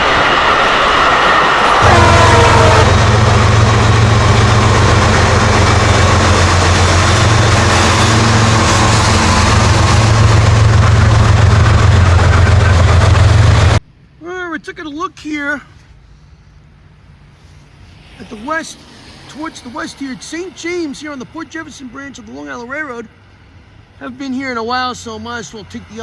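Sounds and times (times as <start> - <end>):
diesel locomotive engine drone: 0.0 - 15.1, 15.7 - 26.0
rail and wheel noise: 0.0 - 26.0
train horn falling in pitch: 1.6 - 13.8.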